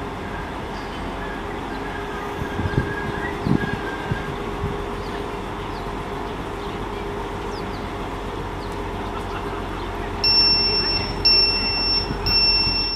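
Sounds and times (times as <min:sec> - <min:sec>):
train idling hum: 0:00.0 - 0:12.9
high-pitched door warning beeps: 0:10.2 - 0:12.9.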